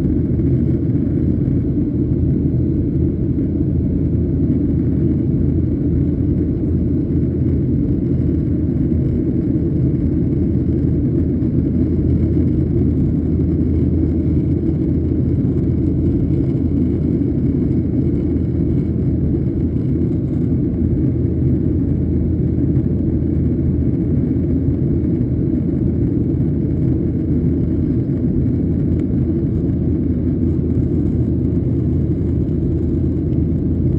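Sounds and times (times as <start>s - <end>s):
airplane cabin rumble: 0.0s - 33.9s.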